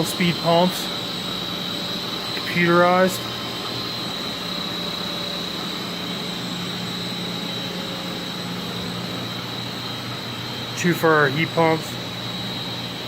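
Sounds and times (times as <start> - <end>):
boiler room machinery humming: 0.0 - 13.0
high-pitched whine: 0.0 - 13.0.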